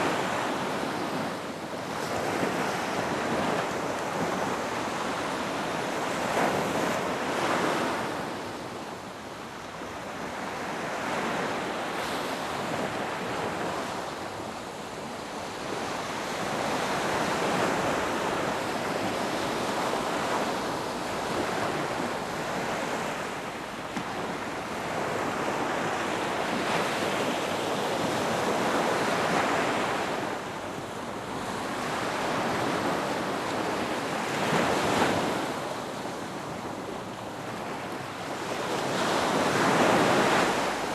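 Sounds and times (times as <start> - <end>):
ocean waves breaking: 9.8 - 40.9.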